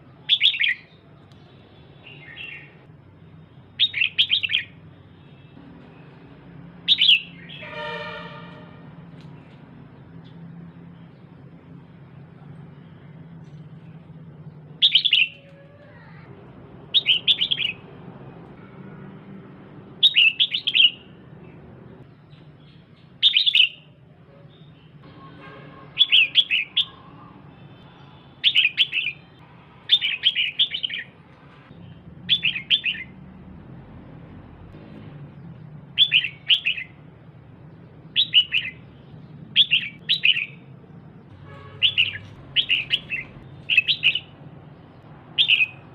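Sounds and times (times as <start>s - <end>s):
bulbul calling: 3.8s - 4.8s, 6.9s - 8.2s, 14.8s - 15.5s, 16.9s - 17.8s, 20.0s - 21.1s, 23.2s - 23.9s, 36.0s - 37.0s, 38.1s - 38.8s, 39.6s - 40.6s, 41.6s - 44.4s, 45.4s - 45.9s.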